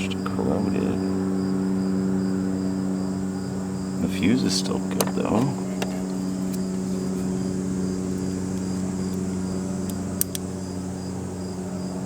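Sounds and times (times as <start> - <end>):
insects chirping: 0.0 - 12.0
steady low hum: 0.0 - 12.0
sharp clicks: 9.8 - 10.5.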